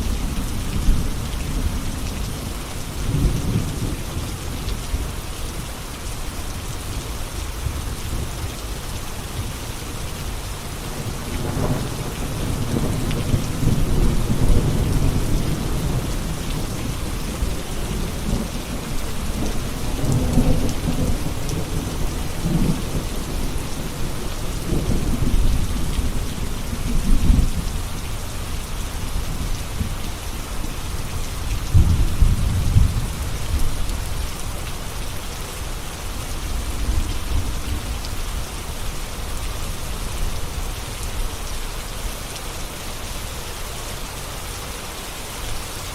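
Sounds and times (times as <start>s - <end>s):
steady rain: 0.0s - 45.9s
thunder rumbling: 11.0s - 27.7s, 31.6s - 34.2s.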